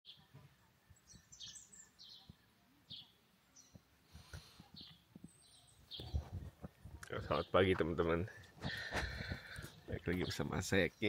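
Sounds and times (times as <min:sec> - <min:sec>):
faint bird chirping: 0:00.1 - 0:11.0
soft low bumps: 0:04.6 - 0:10.3.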